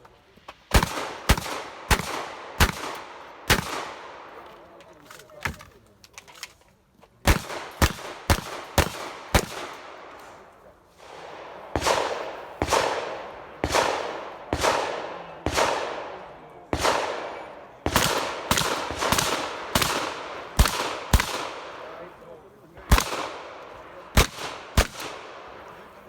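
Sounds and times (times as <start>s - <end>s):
shotgun shots with echo: 0.7s - 4.4s, 7.3s - 10.4s, 11.0s - 22.1s, 22.8s - 25.8s.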